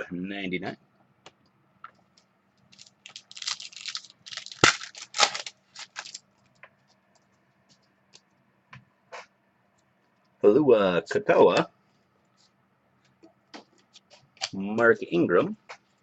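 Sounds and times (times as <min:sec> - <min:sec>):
card pack crinkling and rustling: 0:02.7 - 0:06.6.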